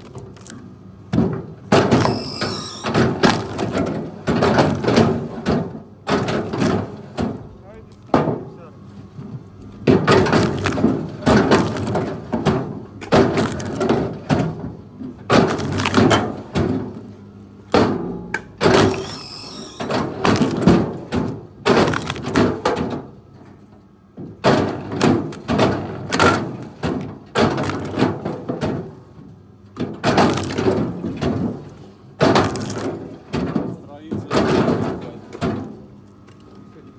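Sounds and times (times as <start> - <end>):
wood cracking and breaking: 0.0 - 0.6, 1.8 - 5.4, 9.9 - 16.9, 18.6 - 23.0, 24.4 - 29.0, 29.8 - 35.7.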